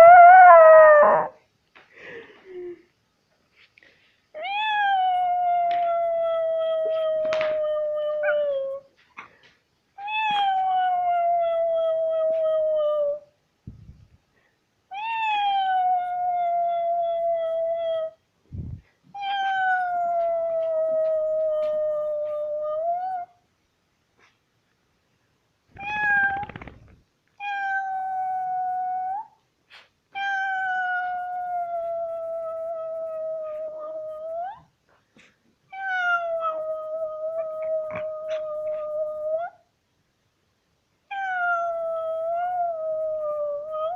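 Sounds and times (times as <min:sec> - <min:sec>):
dog howling: 0:00.0 - 0:01.4, 0:04.8 - 0:08.9.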